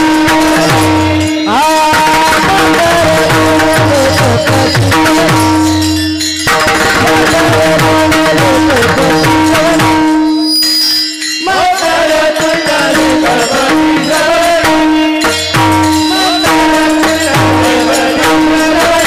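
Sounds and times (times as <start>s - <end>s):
person singing ornamented melody: 0.0s - 5.8s, 11.3s - 19.0s
hand drum strokes: 0.0s - 11.2s, 12.5s - 19.0s
held drone note: 3.0s - 11.4s, 12.4s - 19.0s.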